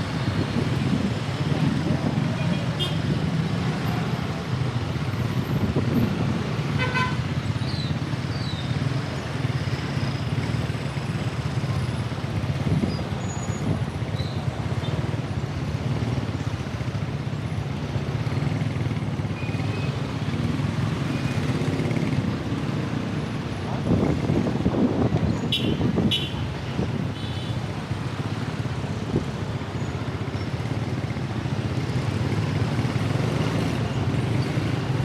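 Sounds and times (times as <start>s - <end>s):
road traffic noise: 0.0s - 35.0s
vehicle horn toot: 6.8s - 7.2s.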